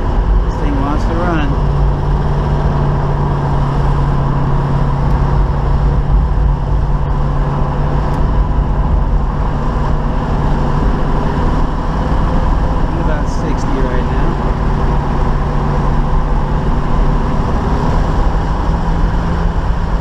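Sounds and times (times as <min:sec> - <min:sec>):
car engine cruising: 0:00.0 - 0:20.0
road noise: 0:00.0 - 0:20.0.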